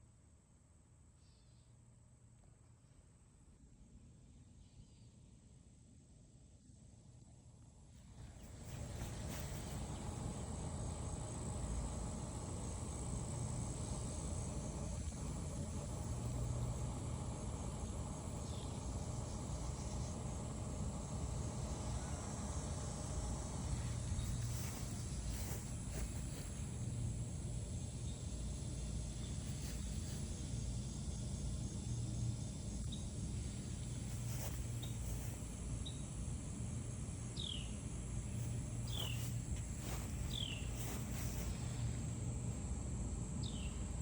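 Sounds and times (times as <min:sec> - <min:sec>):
insect chirring: 0:27.8 - 0:42.7.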